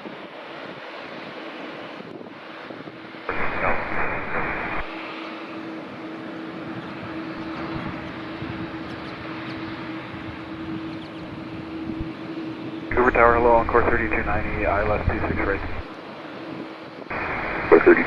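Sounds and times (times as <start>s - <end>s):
jet engines humming: 0.0s - 18.0s
radio static burst: 3.3s - 5.0s, 12.9s - 15.9s, 17.1s - 18.0s.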